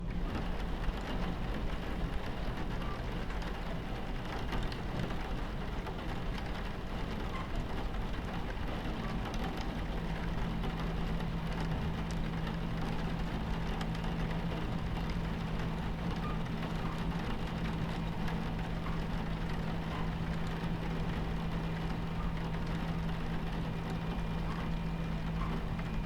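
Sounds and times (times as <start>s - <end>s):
moving train rumbling: 0.0s - 26.0s
rain on train window: 0.0s - 26.0s
low hum: 8.8s - 26.0s.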